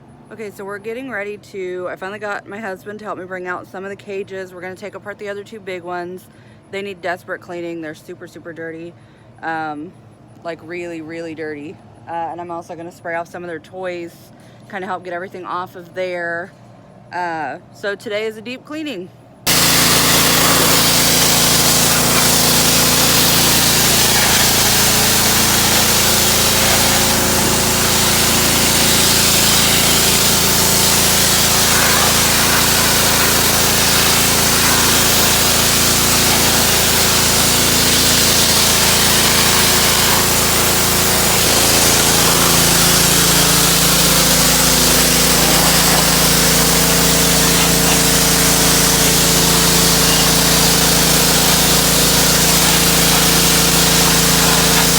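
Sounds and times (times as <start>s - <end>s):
pressure washer motor hum: 19.5s - 54.9s
water jet hissing: 19.5s - 54.9s.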